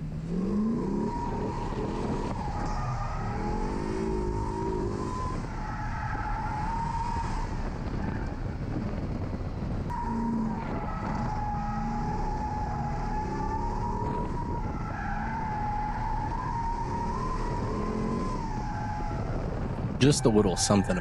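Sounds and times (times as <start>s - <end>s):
car engine revving: 0.0s - 7.4s, 9.9s - 19.4s
tire squealing: 0.0s - 21.0s.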